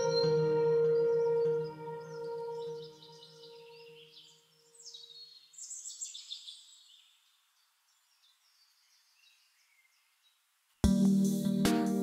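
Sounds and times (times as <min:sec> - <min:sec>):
soft musical tone: 0:00.0 - 0:04.4
birds chirping: 0:00.0 - 0:10.5.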